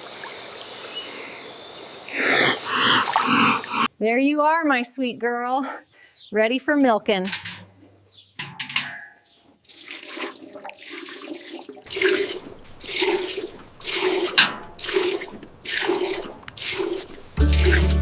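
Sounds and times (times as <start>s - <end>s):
milk squirting into a pail: 9.6s - 18.0s.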